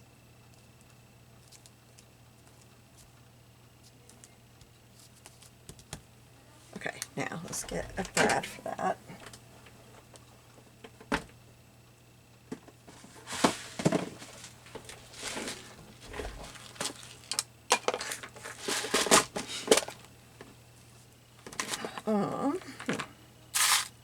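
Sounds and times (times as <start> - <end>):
rustling of craft supplies: 12.8 - 20.1, 21.4 - 24.0.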